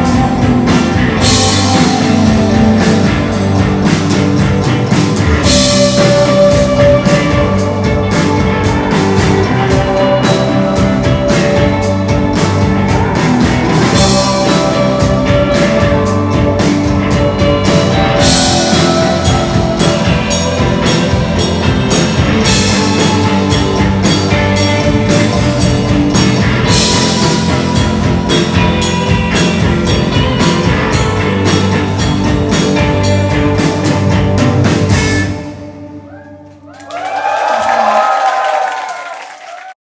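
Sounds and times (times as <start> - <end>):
loud rock music: 0.0 - 36.2
crowd cheering: 36.1 - 39.8.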